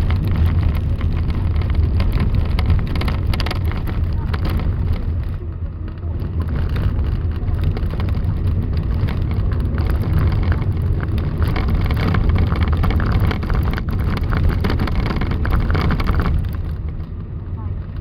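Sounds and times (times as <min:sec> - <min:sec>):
blizzard wind rumble: 0:00.0 - 0:18.0.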